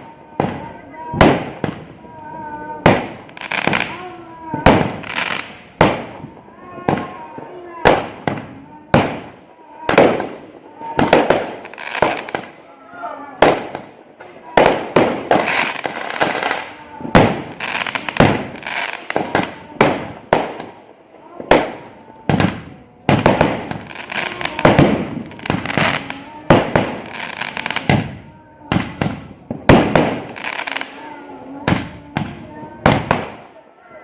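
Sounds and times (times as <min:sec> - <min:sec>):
fireworks bangs with crackle: 0:00.0 - 0:33.6.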